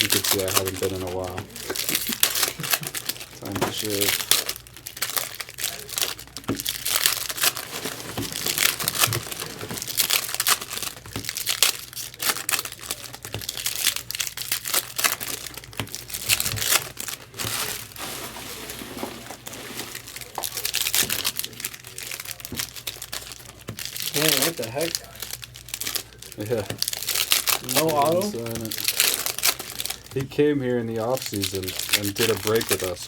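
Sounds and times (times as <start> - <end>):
foil wrappers crinkling and tearing: 0.0 - 33.0.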